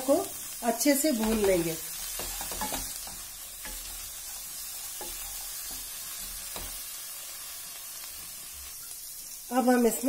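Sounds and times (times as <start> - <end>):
food sizzling in hot ghee: 0.0 - 10.0
spatula scraping pan: 1.2 - 6.9.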